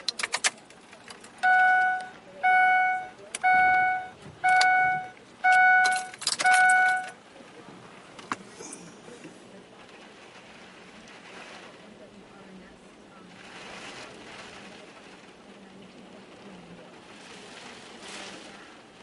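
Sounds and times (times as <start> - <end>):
car warning chime: 1.4 - 7.2.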